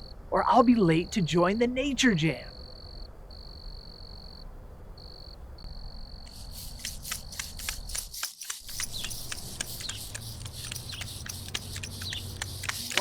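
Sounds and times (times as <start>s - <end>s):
crickets trilling: 2.5s - 13.0s
high bird chirps: 8.7s - 12.8s.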